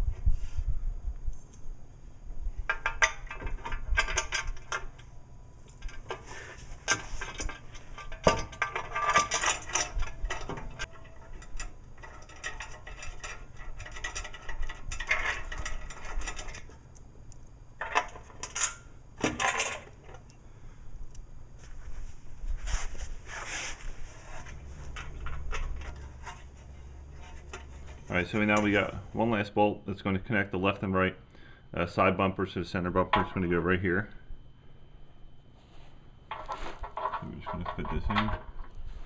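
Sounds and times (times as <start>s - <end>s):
metallic clicking and clinking: 2.7s - 5.1s, 6.8s - 20.4s.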